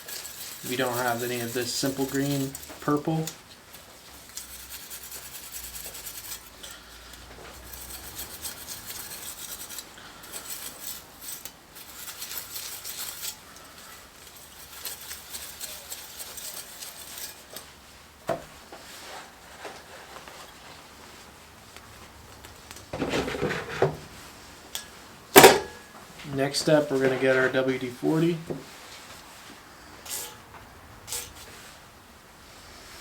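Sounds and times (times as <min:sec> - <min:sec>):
steel pad scrubbing saw blade: 0:00.0 - 0:03.4, 0:04.2 - 0:17.6, 0:30.1 - 0:30.4, 0:31.1 - 0:31.5.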